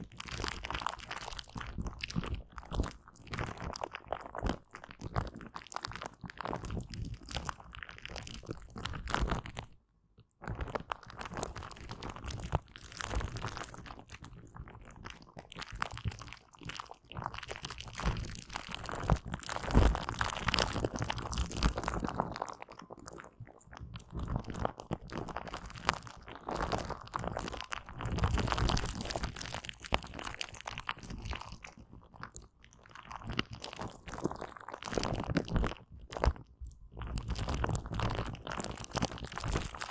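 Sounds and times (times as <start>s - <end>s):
wet sticky gel squishing: 10.4s - 39.9s.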